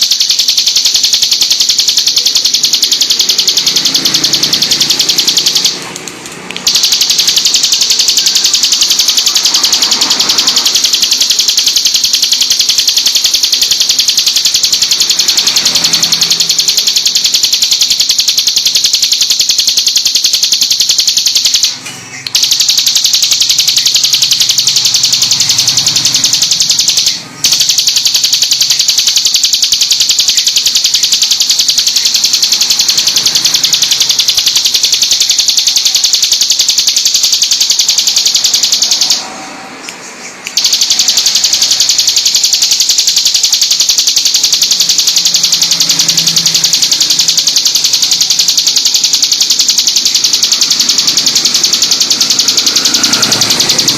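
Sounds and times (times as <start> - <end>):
bird singing rapid sharp notes: 0.0 - 53.9.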